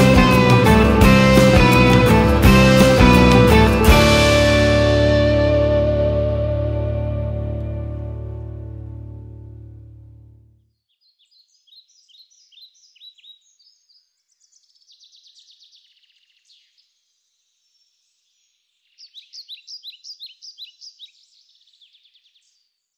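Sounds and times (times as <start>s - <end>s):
small birds chirping and trilling: 10.8s - 22.9s.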